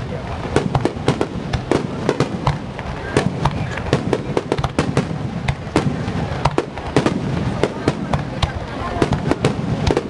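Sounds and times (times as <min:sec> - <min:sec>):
fireworks cracking and banging: 0:00.0 - 0:10.0.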